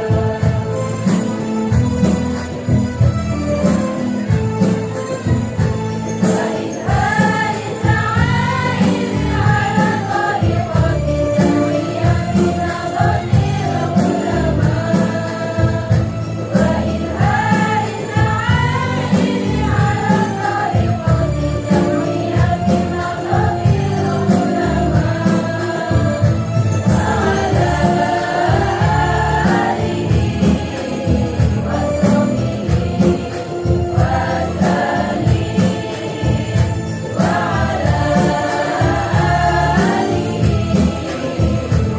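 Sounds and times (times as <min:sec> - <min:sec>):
women's choir singing: 0:00.0 - 0:02.8, 0:05.2 - 0:41.9
jingling tambourine percussion: 0:00.0 - 0:41.9.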